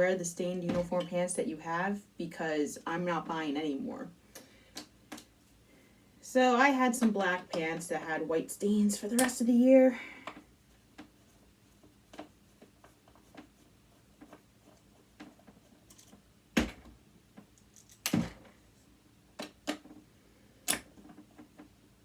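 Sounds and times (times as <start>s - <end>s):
metal parts clicking and tapping: 15.8s - 16.2s.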